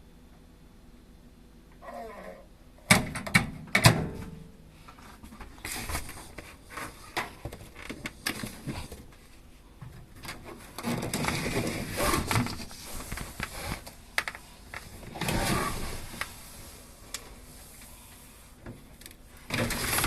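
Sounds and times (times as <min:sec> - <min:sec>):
scraping and rustling: 0:10.0 - 0:20.0.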